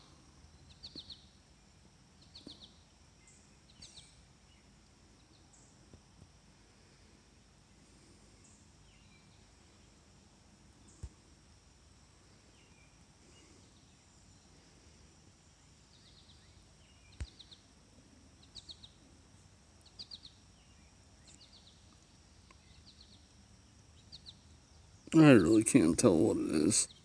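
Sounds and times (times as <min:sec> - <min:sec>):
small bird high chirps: 0:00.6 - 0:01.4, 0:02.2 - 0:04.3, 0:15.9 - 0:17.6, 0:18.4 - 0:19.0, 0:19.8 - 0:23.3, 0:24.0 - 0:24.9.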